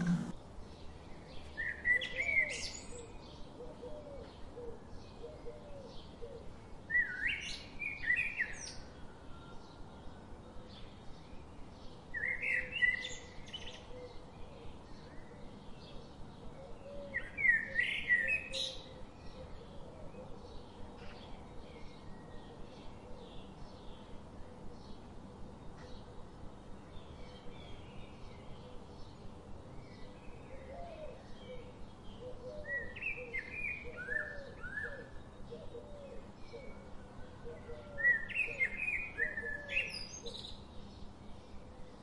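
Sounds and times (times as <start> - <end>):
bird chirping phrase: 0.0 - 0.4.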